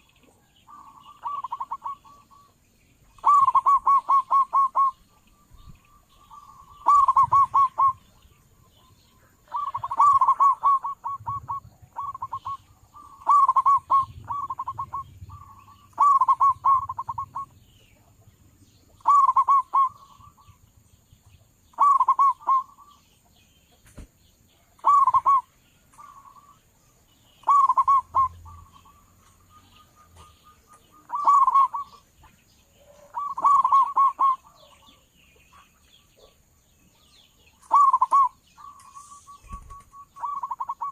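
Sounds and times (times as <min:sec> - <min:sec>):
dove cooing: 0:00.7 - 0:02.5, 0:03.2 - 0:05.2, 0:06.2 - 0:08.2, 0:09.4 - 0:17.6, 0:19.0 - 0:20.6, 0:21.7 - 0:23.0, 0:24.7 - 0:26.6, 0:27.4 - 0:32.1, 0:32.7 - 0:36.4, 0:37.6 - 0:40.9.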